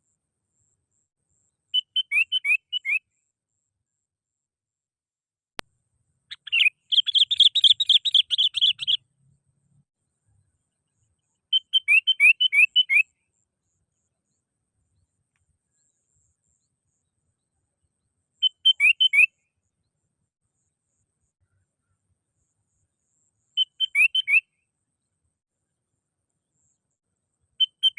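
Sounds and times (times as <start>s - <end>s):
bird chirping: 0.6s - 3.1s, 6.3s - 9.4s, 10.2s - 25.2s, 27.6s - 27.9s.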